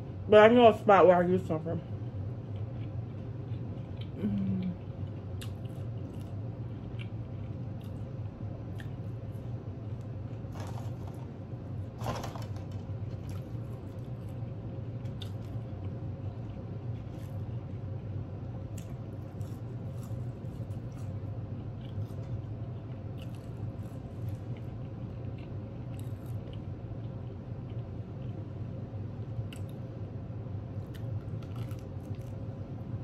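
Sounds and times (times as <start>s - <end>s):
steady low hum: 0.0s - 33.0s
person chewing food: 2.1s - 11.4s, 13.1s - 28.6s, 30.8s - 32.5s
food-handling noises: 10.4s - 13.5s.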